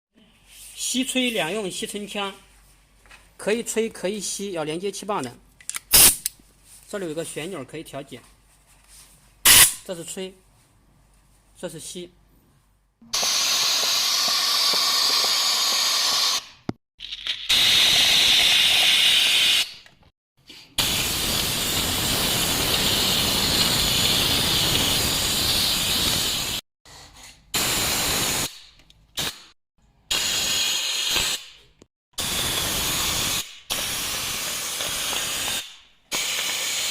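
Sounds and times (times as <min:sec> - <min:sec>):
air dust gun hissing: 0:05.9 - 0:06.3, 0:09.5 - 0:09.8, 0:13.1 - 0:16.7, 0:17.5 - 0:19.8, 0:20.8 - 0:26.6, 0:27.6 - 0:28.6, 0:30.1 - 0:31.5, 0:32.2 - 0:36.9.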